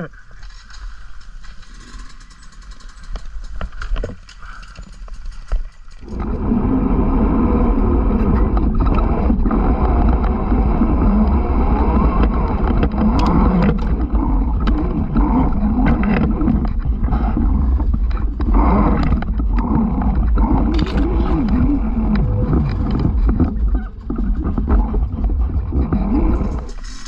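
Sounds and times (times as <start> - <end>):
sharp knocks and clatter: 0.4 - 6.2
motorbike engine: 4.5 - 27.0
wind rushing on microphone: 6.0 - 26.8.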